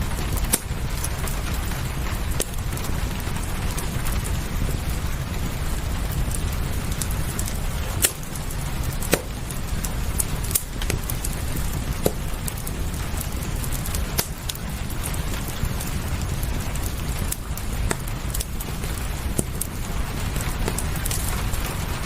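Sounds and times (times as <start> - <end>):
rain hiss: 0.0 - 22.0
wood fire crackling and popping: 0.0 - 22.0.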